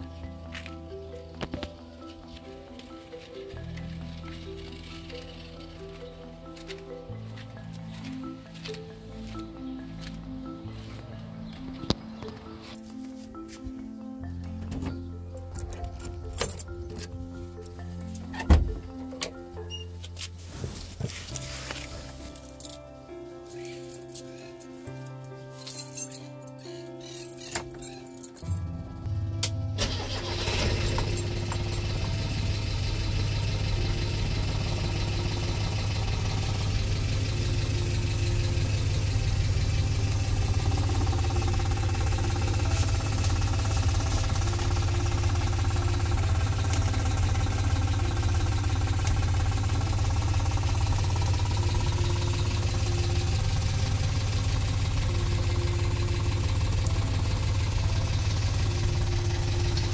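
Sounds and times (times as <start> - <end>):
car engine idling: 29.1 - 59.9.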